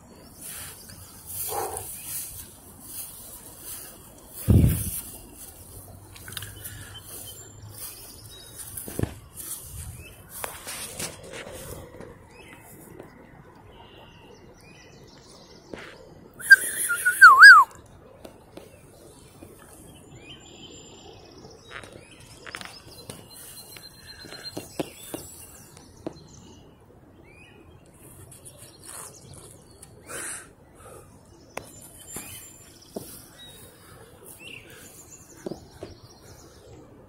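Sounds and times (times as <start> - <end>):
wild birds calling: 0.0 - 10.2, 16.4 - 17.7, 29.8 - 36.9
loud wavering whistled call: 16.4 - 17.8.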